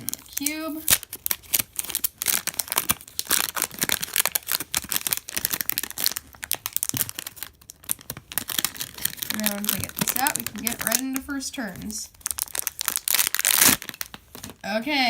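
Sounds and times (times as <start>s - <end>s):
plastic packaging crackling: 0.0s - 14.6s.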